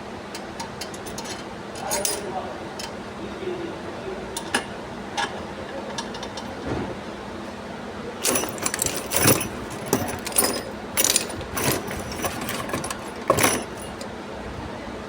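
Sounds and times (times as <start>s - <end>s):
metal tools clinking: 8.2s - 14.1s.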